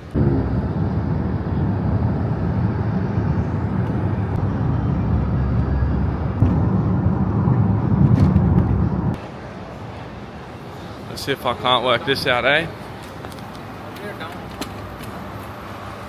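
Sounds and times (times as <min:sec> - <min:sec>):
traffic rumble: 0:00.0 - 0:10.6.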